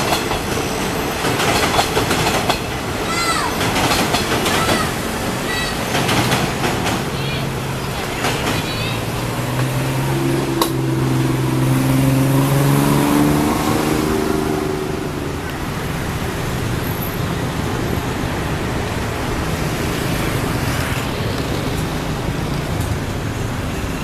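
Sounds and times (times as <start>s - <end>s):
traffic rumble: 0.0s - 24.0s
engine hum: 4.4s - 24.0s.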